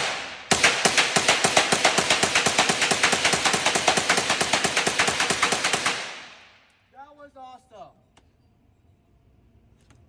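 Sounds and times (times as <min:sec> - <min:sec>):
rapid gunshots: 0:00.0 - 0:06.6.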